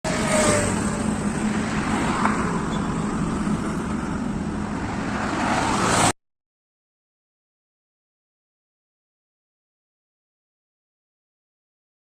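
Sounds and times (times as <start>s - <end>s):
vehicles driving past at speed: 0.1s - 6.2s.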